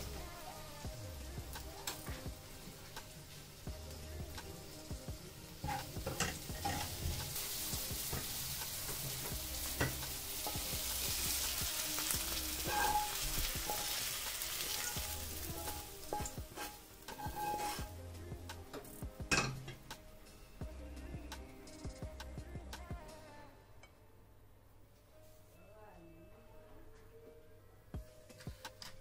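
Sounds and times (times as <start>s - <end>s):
onions sizzling in oil: 0.0s - 19.9s
food scraped onto plate: 16.6s - 17.9s.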